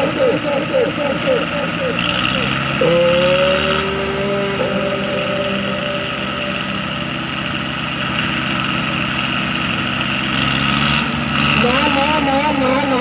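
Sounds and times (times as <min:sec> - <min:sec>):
tractor diesel engine running: 0:00.0 - 0:13.0
brief held tone: 0:00.5 - 0:07.7.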